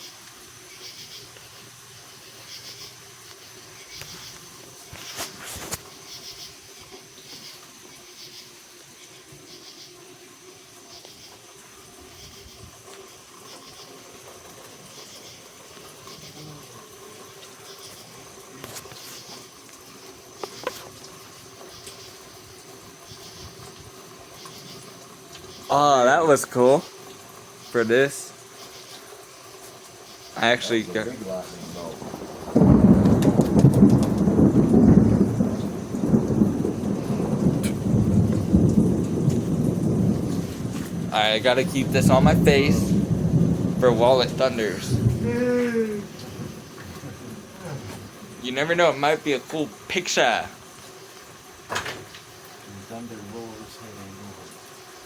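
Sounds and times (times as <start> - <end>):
steady rain falling: 0.0 - 55.0
thunder rolling: 30.4 - 50.5.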